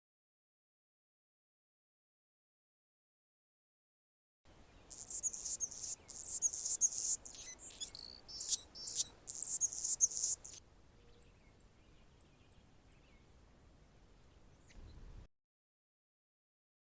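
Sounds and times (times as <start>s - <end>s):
hummingbird buzzy song: 4.7s - 15.0s.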